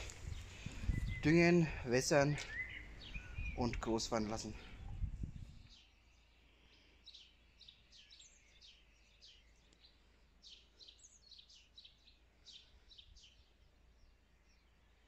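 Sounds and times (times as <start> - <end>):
faint bird chirping: 0.0 - 15.0.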